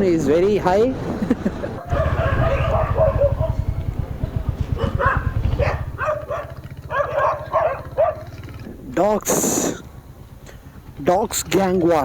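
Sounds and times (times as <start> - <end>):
dogs barking and yelping: 1.7 - 8.4
motorcycle engine pulsing: 1.8 - 12.0.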